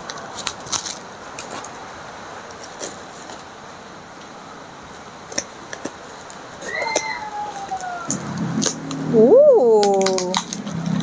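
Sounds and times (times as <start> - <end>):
sharp crackles: 5.3 - 9.1, 9.7 - 11.0.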